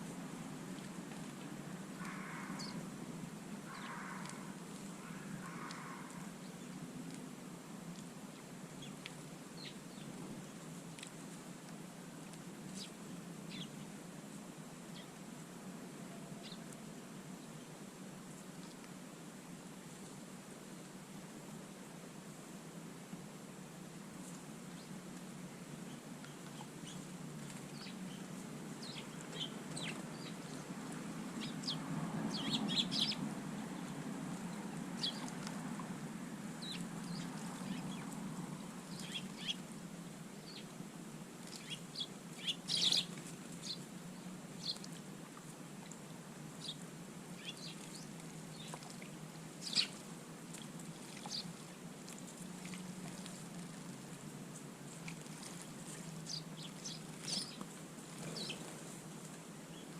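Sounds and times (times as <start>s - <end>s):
bird calls and chirps: 3.7s - 6.7s, 27.6s - 30.6s, 31.4s - 33.2s, 35.0s - 35.4s, 36.6s - 38.2s, 38.9s - 39.6s, 41.5s - 43.8s, 47.4s - 48.9s, 49.6s - 50.0s, 51.2s - 51.5s, 56.3s - 57.6s, 58.2s - 58.7s.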